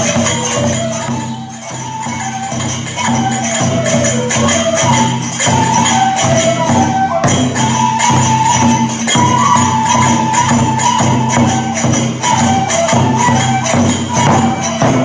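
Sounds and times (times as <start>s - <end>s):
bamboo flute melody: 0.0s - 15.0s
small hand cymbals jangling: 0.0s - 15.0s
steady drumbeats: 0.0s - 15.0s.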